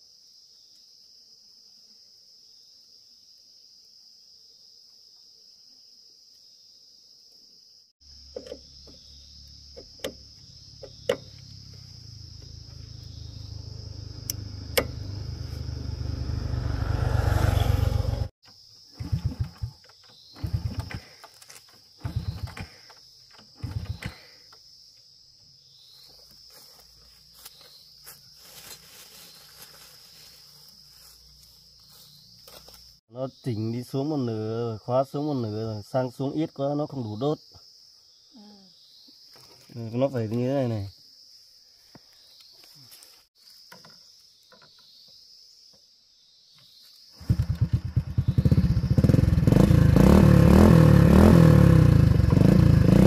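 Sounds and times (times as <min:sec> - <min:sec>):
crickets trilling: 0:00.0 - 0:51.4
engine catching and dying: 0:09.8 - 0:18.3, 0:18.9 - 0:21.2, 0:22.0 - 0:22.8, 0:47.2 - 0:53.0
motorcycle engine running: 0:10.1 - 0:18.3, 0:47.2 - 0:53.0.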